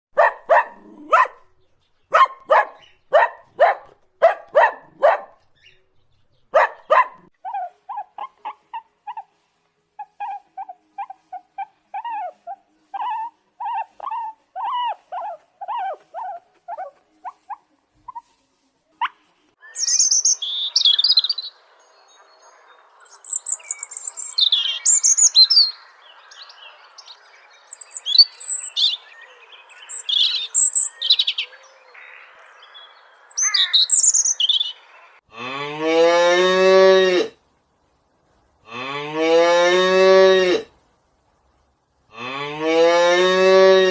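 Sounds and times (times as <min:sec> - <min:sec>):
dog barking: 0:00.2 - 0:05.4, 0:06.5 - 0:09.2
birds chirping: 0:00.2 - 0:18.3, 0:19.1 - 0:35.6.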